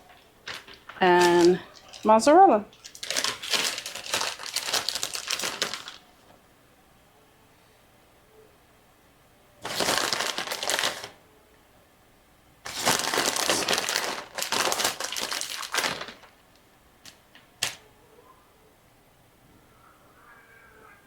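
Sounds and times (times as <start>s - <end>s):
packaging crinkling: 0.0s - 6.1s, 9.6s - 11.2s, 12.7s - 17.8s.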